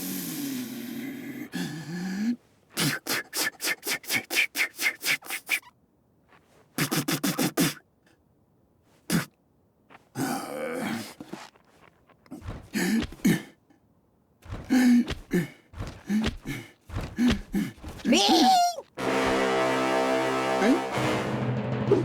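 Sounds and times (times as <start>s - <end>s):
noisy breathy sound: 0.0s - 5.7s, 14.5s - 18.1s
sharp vocal pulses: 14.5s - 18.9s
cartoon character grunt: 17.3s - 18.8s.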